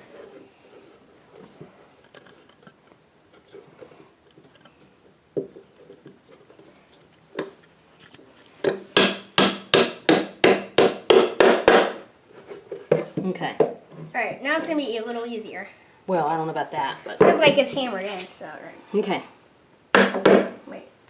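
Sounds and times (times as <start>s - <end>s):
hammer hitting nail into wood: 8.7s - 12.0s, 20.0s - 20.6s.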